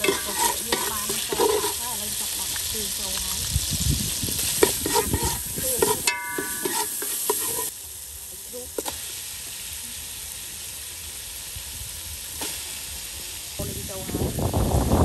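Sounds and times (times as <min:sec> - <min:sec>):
metal ladle scraping pot: 0:00.0 - 0:02.0, 0:04.5 - 0:07.7
paste sizzling in hot oil: 0:00.0 - 0:15.0
ladle ringing: 0:06.0 - 0:07.0.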